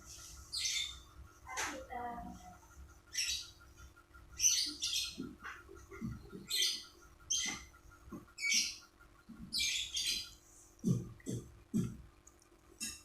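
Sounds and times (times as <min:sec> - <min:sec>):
bird chirping harshly: 0:04.4 - 0:05.2, 0:06.1 - 0:07.7, 0:09.5 - 0:10.4.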